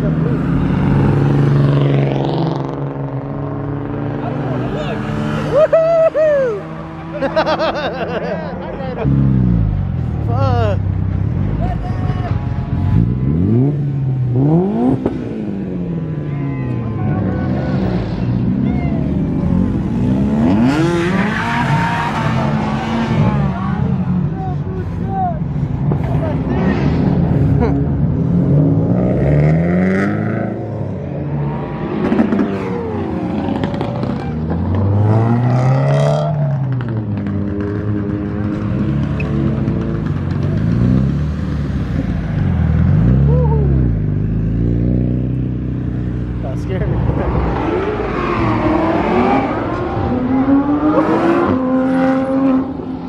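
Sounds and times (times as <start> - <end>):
car engines accelerating past: 12.9 - 24.4, 25.7 - 53.0.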